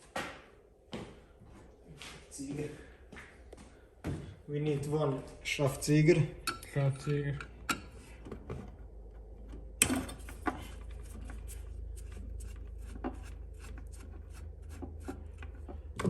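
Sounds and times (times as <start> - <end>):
short rubbing strokes on wire: 10.9 - 15.5.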